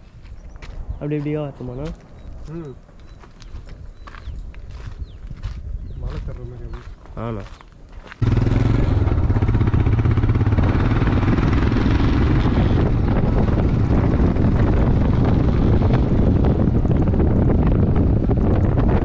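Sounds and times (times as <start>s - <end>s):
wind over microphone: 0.0s - 19.0s
vehicle engine drone: 8.2s - 19.0s.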